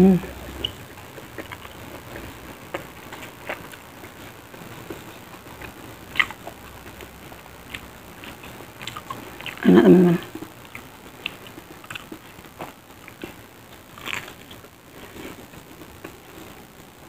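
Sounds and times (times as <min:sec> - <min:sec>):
chewing crispy fried food: 0:00.2 - 0:16.8.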